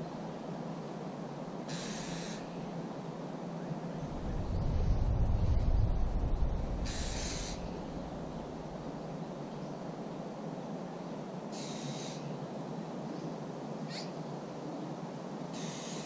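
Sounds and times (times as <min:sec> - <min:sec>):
bird buzzy call: 0:01.7 - 0:02.6, 0:06.8 - 0:08.0, 0:11.5 - 0:12.4, 0:15.5 - 0:16.0
low rushing background: 0:03.9 - 0:09.5.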